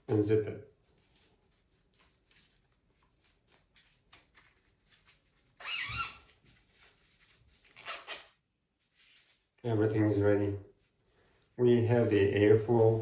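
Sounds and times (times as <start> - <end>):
plastic and fabric rustling: 0.8 - 9.7
zipper being pulled closed: 7.8 - 8.3.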